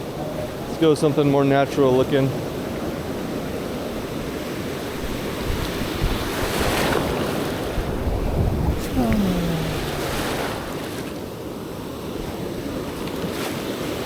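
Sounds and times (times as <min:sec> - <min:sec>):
ocean surf breaking on beach: 0:08.7 - 0:10.8.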